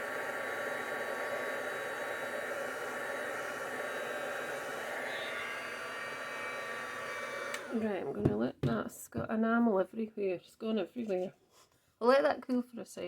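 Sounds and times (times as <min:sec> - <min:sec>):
fan whine: 0:00.0 - 0:08.0
heat tool blowing hot air: 0:00.0 - 0:08.0.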